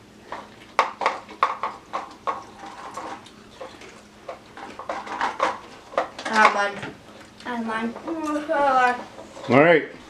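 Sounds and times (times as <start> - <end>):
crackers crunching: 0.0 - 9.6.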